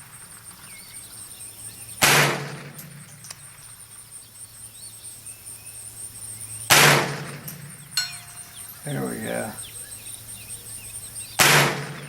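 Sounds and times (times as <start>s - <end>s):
rifle shot: 2.0s - 3.1s, 6.7s - 7.8s, 11.4s - 12.0s.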